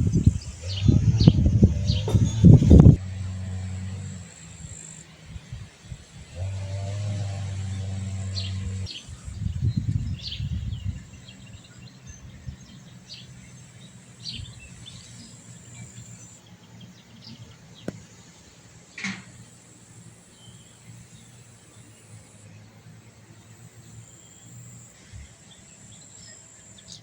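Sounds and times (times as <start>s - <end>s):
low hum: 0.0s - 13.2s
wind buffeting microphone: 0.0s - 13.6s
small songbirds chirping: 0.0s - 27.0s.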